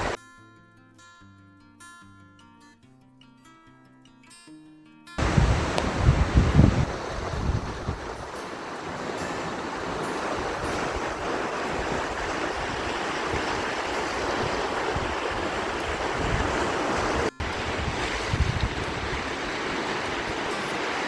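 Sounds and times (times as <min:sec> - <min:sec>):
sea surf washing on shore: 0:05.2 - 0:21.0
wind buffeting microphone: 0:05.2 - 0:21.0.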